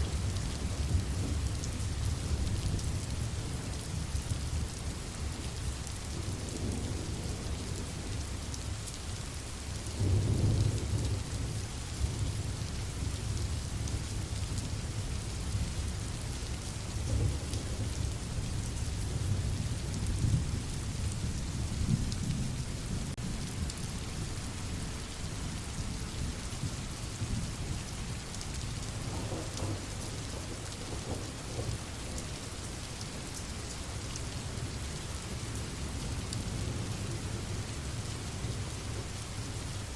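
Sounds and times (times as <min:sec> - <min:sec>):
steady rainfall: 0:00.0 - 0:39.9
distant thunder rumbling: 0:29.0 - 0:32.1.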